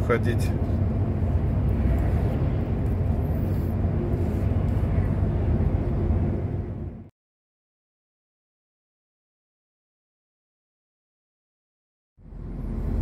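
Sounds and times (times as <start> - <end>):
road noise: 0.0 - 7.1, 12.2 - 13.0
truck engine drone: 0.0 - 7.1, 12.2 - 13.0.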